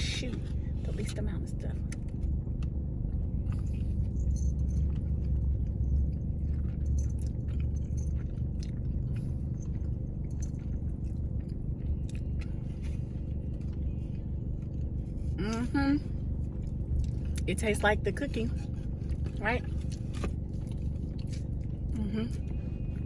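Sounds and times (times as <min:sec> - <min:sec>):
low rumble: 0:00.0 - 0:23.0
chewing mouth clicks: 0:01.9 - 0:15.0, 0:19.1 - 0:22.6.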